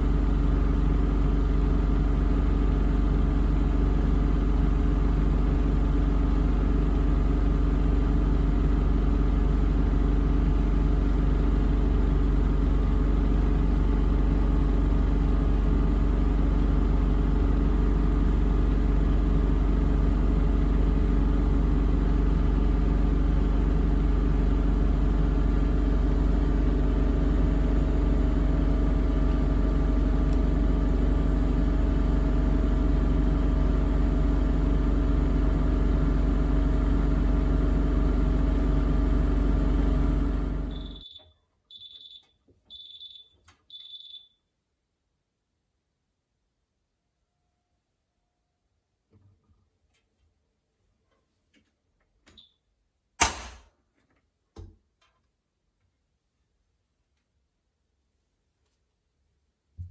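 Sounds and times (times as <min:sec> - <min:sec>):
washing machine spinning: 0:22.7 - 0:41.0.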